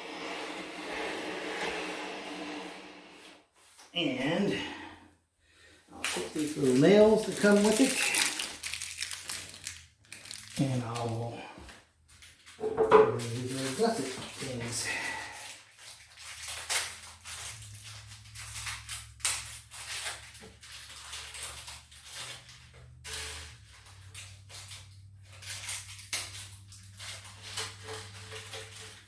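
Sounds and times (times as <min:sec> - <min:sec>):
small parts tapping and clicking: 0:06.7 - 0:11.0.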